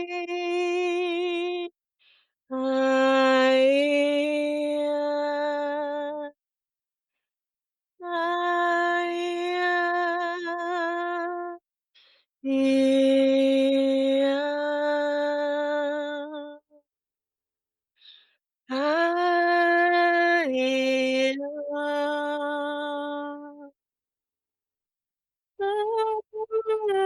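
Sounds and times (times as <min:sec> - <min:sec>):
woman singing long vowels: 0:00.0 - 0:01.8, 0:02.5 - 0:06.4, 0:08.0 - 0:11.6, 0:12.4 - 0:16.8, 0:18.7 - 0:23.8, 0:25.6 - 0:27.0.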